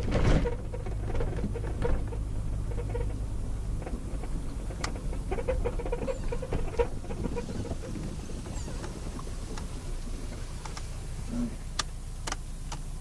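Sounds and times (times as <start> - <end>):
small clicks and rattles: 0.0 - 10.9
road and engine rumble: 0.0 - 13.0.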